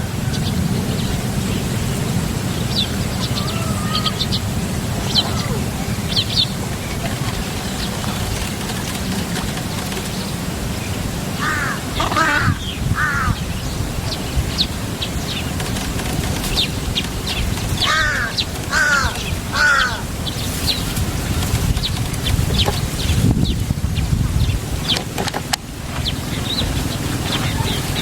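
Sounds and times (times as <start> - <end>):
steady low rumble: 0.0 - 25.0
bird cawing: 2.8 - 6.6, 11.4 - 13.6, 17.8 - 20.2.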